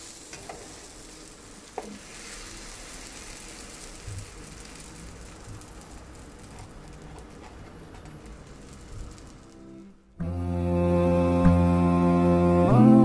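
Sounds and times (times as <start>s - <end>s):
toastie sizzling in a frying pan: 0.0s - 10.2s.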